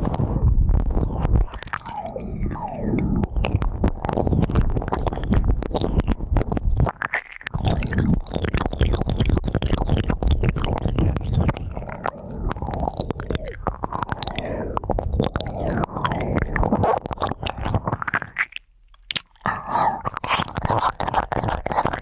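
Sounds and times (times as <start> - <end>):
heavy low rumble: 0.0 - 6.6
ear pick scraping microphone: 0.0 - 7.0.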